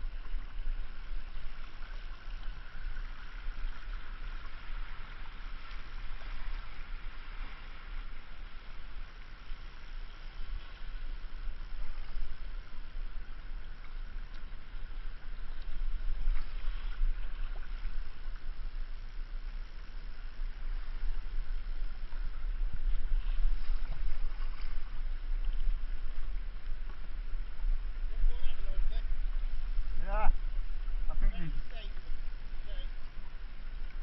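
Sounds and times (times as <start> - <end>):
wind rumble on microphone: 0.0 - 34.0
faint ticks: 13.2 - 20.2.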